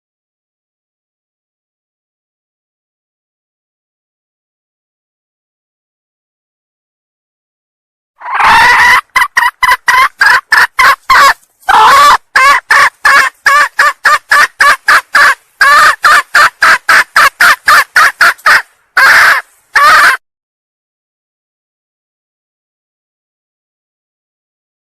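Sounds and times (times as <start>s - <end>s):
hen calling and clucking: 8.2s - 20.2s.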